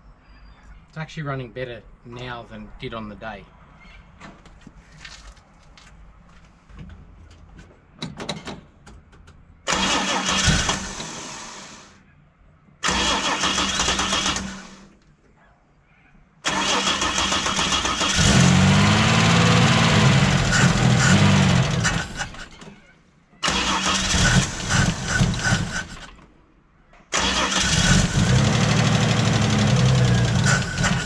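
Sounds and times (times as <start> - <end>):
car engine starting and revving: 9.7 - 11.9, 12.8 - 14.9, 16.4 - 22.4, 23.4 - 26.1, 27.1 - 31.0.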